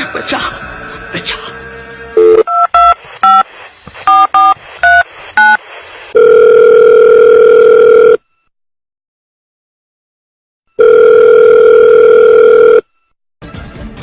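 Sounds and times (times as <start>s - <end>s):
telephone ringing tone: 2.2s - 3.4s, 6.2s - 8.3s, 10.7s - 13.0s
telephone keypad tones: 10.8s - 12.9s.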